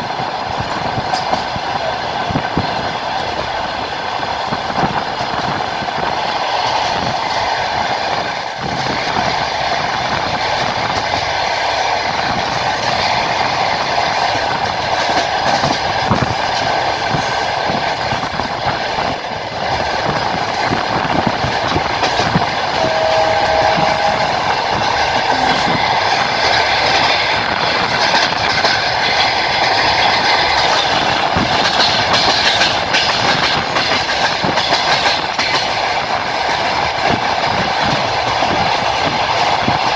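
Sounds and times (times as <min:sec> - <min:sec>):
train wheels clattering: 0:00.0 - 0:39.9
two-note tone: 0:22.6 - 0:26.0.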